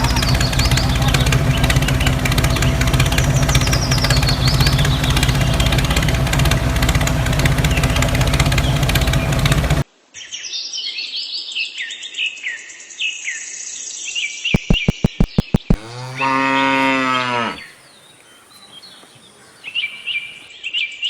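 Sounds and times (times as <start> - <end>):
birds chirping: 0.0 - 9.8, 14.6 - 20.5
engine knocking beat: 0.0 - 9.8, 14.6 - 16.1.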